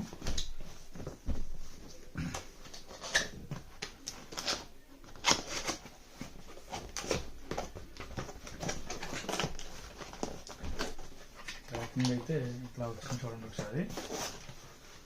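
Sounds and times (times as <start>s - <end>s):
packaging rustling: 2.6s - 15.0s.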